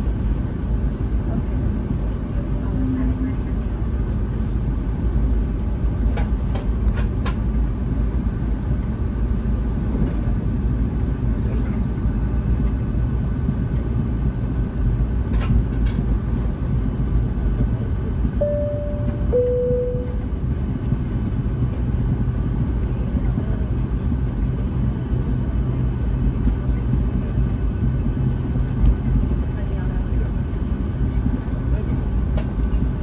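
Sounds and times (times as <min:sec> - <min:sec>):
airplane cabin rumble: 0:00.0 - 0:33.0
two-tone cabin chime: 0:18.4 - 0:20.3.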